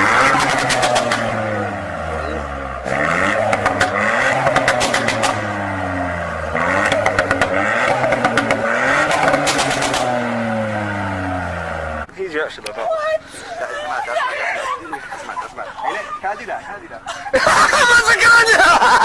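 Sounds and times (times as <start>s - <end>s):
car engine revving: 0.0s - 12.1s
exhaust crackling and popping: 0.0s - 13.4s.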